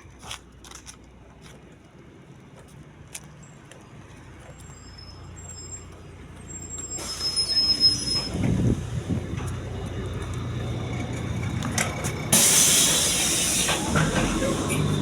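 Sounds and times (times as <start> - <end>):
bus engine humming: 0.0 - 15.0
pneumatic air hiss: 6.8 - 8.4, 12.3 - 15.0.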